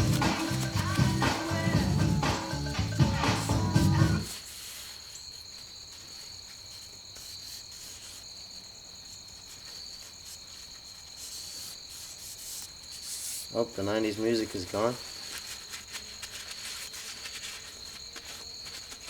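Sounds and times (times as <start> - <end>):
background music: 0.0 - 4.3
crickets trilling: 0.0 - 19.0.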